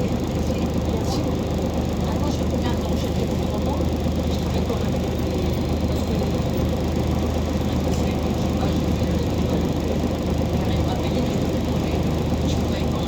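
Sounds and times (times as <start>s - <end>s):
bus diesel engine humming: 0.0s - 13.0s.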